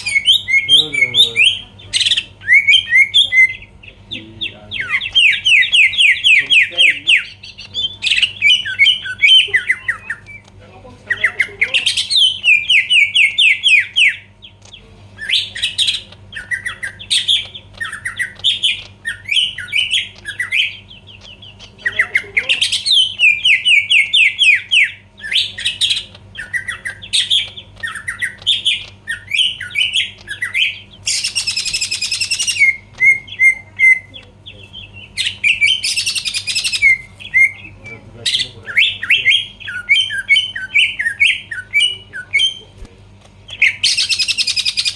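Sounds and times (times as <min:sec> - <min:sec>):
bird singing whistled notes: 0:00.0 - 0:03.7.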